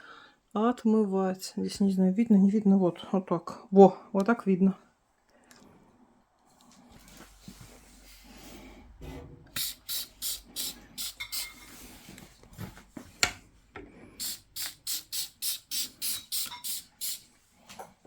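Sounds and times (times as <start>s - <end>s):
spray bottle squirting: 9.6s - 11.7s, 14.2s - 17.3s
spray bottle click: 14.2s - 17.2s.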